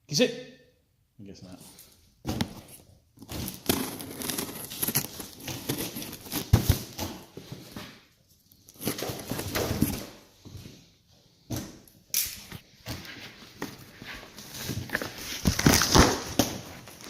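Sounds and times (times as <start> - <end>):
material crinkling and rustling: 2.3 - 10.0, 12.8 - 17.0.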